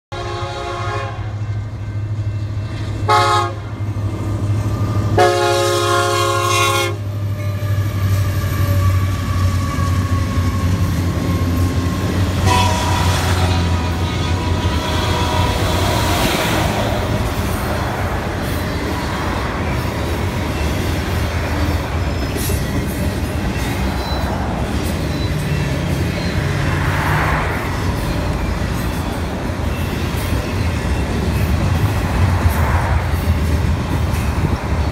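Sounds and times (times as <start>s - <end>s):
locomotive horn blasts: 0.1s - 1.7s, 3.0s - 3.8s, 5.0s - 17.1s
freight cars rumbling and clattering: 7.2s - 34.9s.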